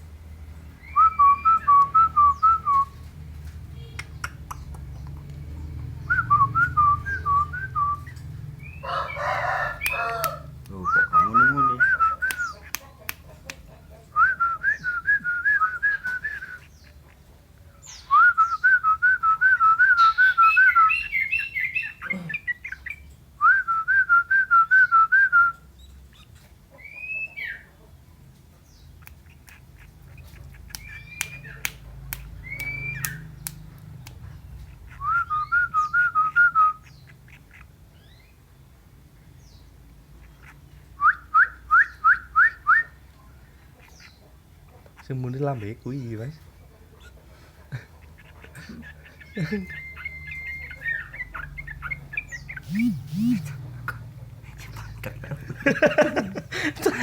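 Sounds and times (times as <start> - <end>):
person whistling birdsong: 0.8 - 3.0, 6.1 - 8.2, 9.8 - 12.6, 14.2 - 16.6, 18.0 - 21.9, 23.4 - 25.7, 32.4 - 33.3, 35.0 - 36.8, 49.2 - 51.1, 52.6 - 53.5.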